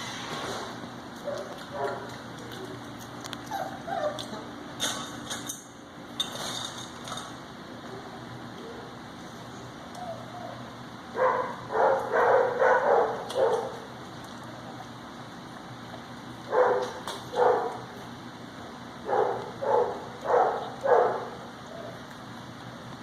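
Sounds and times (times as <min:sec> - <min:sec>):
puppy yapping: 0:03.4 - 0:04.5, 0:11.2 - 0:13.8, 0:16.5 - 0:17.8, 0:19.1 - 0:22.0.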